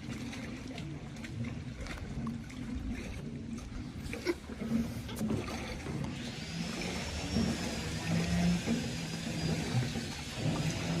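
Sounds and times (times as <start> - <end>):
motor humming: 6.0 - 11.0.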